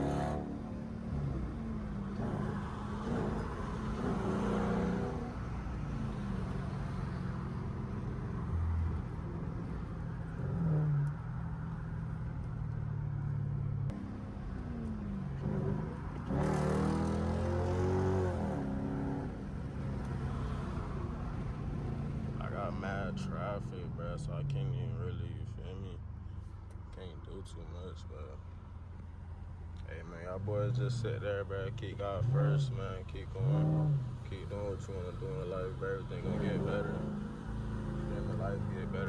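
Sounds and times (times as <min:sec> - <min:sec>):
loud car exhaust revving: 0:00.0 - 0:05.4, 0:15.3 - 0:19.2, 0:31.9 - 0:34.9.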